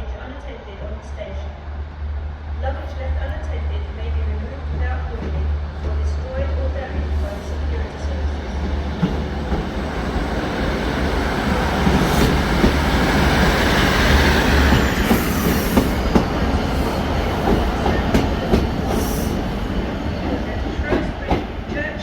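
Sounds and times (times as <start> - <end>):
train rail rumble: 0.0 - 22.0.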